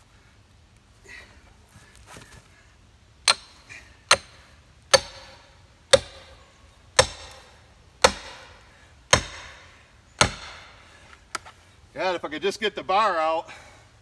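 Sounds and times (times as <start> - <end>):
maul striking metal wedge: 3.3 - 10.9.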